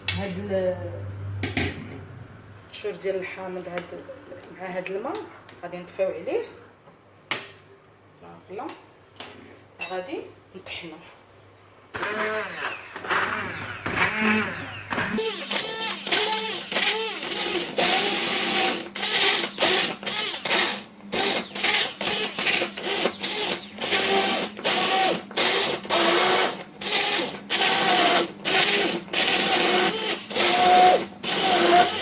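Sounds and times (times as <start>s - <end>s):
electric blender surging: 12.0s - 32.0s.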